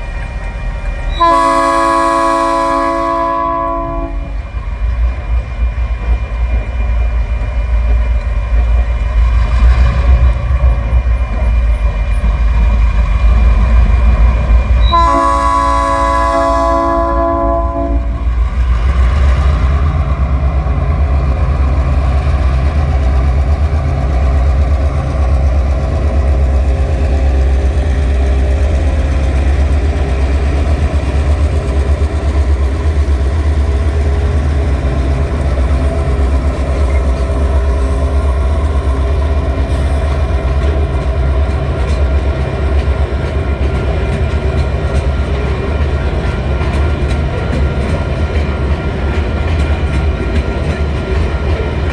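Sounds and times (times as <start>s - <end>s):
train rumble: 0.0s - 51.9s
train horn: 1.0s - 4.4s, 14.8s - 18.4s
train wheel clicks: 18.2s - 51.9s.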